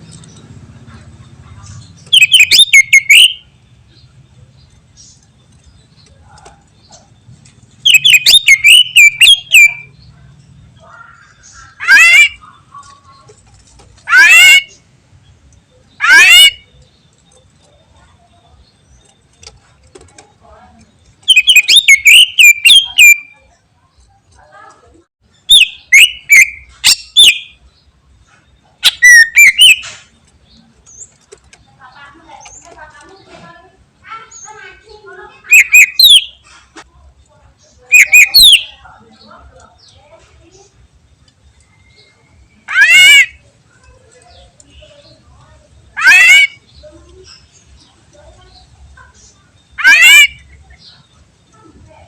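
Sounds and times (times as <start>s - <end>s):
bird singing sharp notes: 1.7s - 3.5s, 7.7s - 10.1s, 21.0s - 23.4s, 35.4s - 36.5s
harsh rising bird call: 2.1s - 3.4s, 7.8s - 9.9s, 10.8s - 12.4s, 14.0s - 14.8s, 16.0s - 16.7s, 21.3s - 23.3s, 28.8s - 29.8s, 35.4s - 36.4s, 37.9s - 38.8s, 42.6s - 43.4s, 49.8s - 50.4s.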